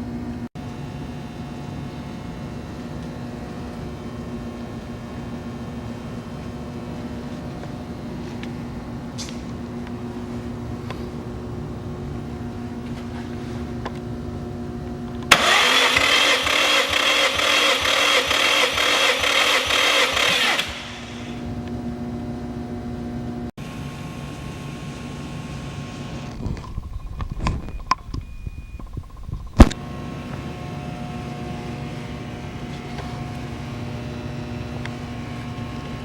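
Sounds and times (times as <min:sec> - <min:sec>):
steady hum: 0:00.0 - 0:36.0
engine cranking on starter: 0:15.3 - 0:21.4.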